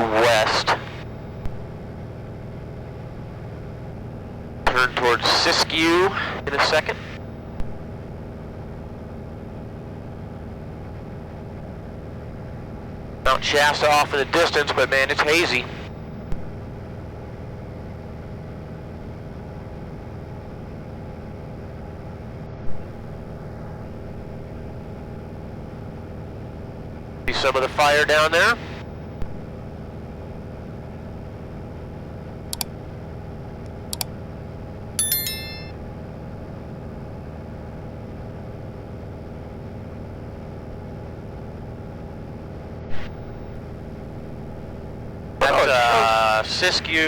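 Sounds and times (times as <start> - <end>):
propeller airplane engine droning: 0.0 - 47.0
short high electronic beep: 35.0 - 35.7.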